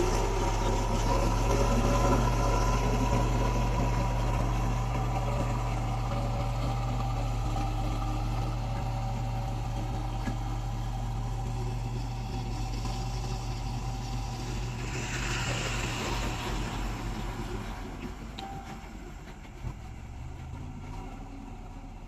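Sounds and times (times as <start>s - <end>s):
diesel engine humming: 0.0s - 22.0s
rushing hiss: 14.3s - 17.8s.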